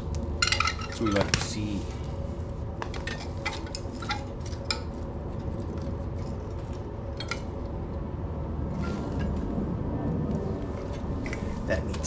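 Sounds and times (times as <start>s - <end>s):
low background noise: 0.0s - 12.0s
tools clinking on metal: 0.4s - 1.6s.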